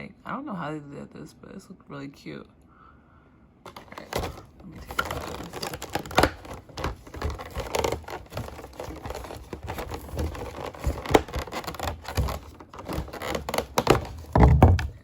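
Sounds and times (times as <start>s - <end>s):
plastic clicks and scrapes: 3.7s - 15.0s
plastic crinkling: 3.7s - 15.0s.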